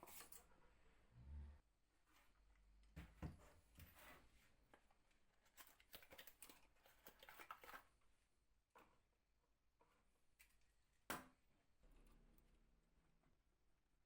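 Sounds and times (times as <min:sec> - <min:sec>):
clicks and scrapes of hand work: 0:00.0 - 0:00.5.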